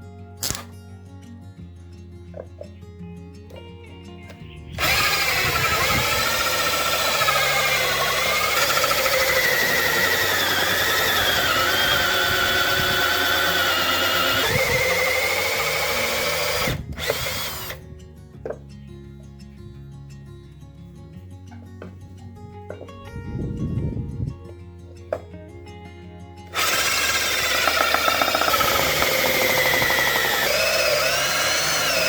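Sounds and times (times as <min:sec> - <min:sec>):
power drill running: 0:04.7 - 0:17.8, 0:26.5 - 0:32.0.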